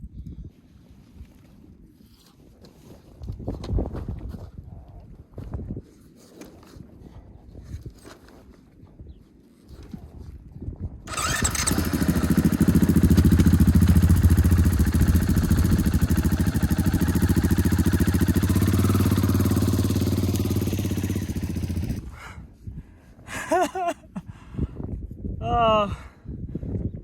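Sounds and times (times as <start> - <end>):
motorcycle engine running: 11.1 - 22.1.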